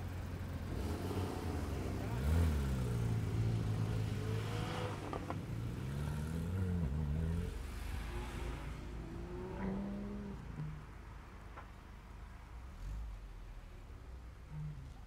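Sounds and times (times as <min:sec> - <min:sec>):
car engine pulling away: 0:00.0 - 0:11.1
car engine hum: 0:00.0 - 0:15.0.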